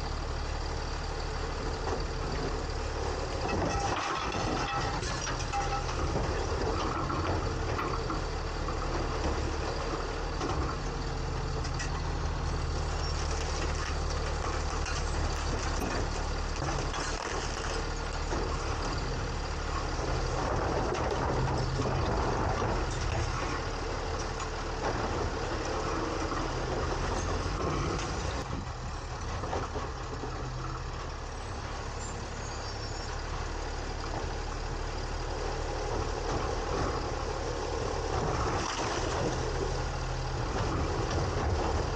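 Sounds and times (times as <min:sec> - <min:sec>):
diesel engine running: 0:00.0 - 0:41.9
dense mechanical clatter: 0:03.4 - 0:09.4, 0:13.0 - 0:30.4.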